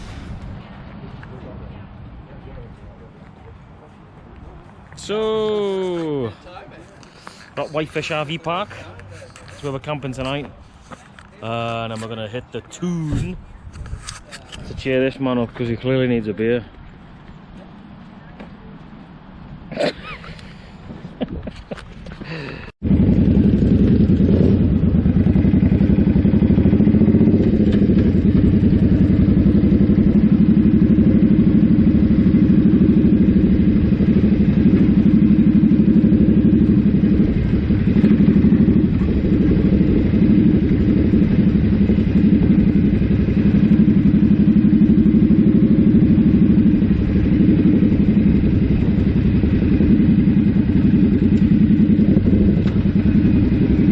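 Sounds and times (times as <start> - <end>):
motorcycle engine running: 0.0 - 1.8, 22.8 - 53.9.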